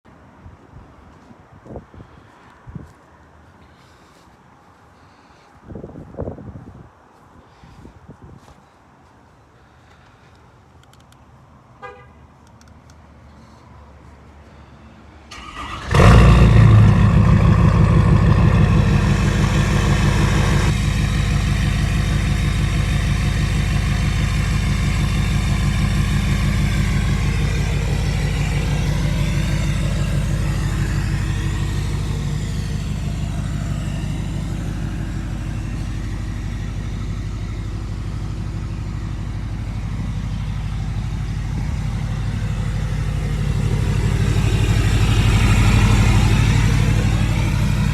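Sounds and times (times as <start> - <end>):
truck engine starting and idling: 15.3 - 47.9.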